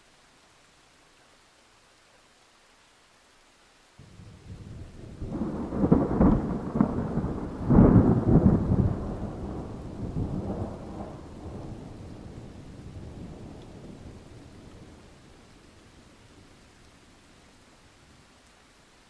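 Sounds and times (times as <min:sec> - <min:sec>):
rain falling: 0:00.0 - 0:19.0
thunder rumbling: 0:04.0 - 0:15.2.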